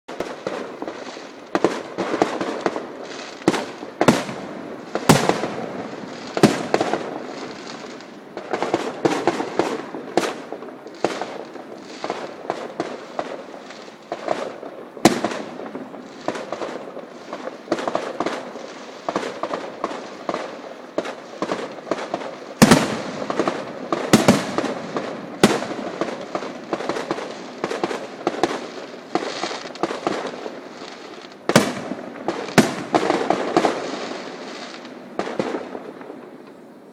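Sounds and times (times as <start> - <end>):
fireworks crackling: 0.1 - 36.9
fireworks exploding bangs: 0.1 - 36.9.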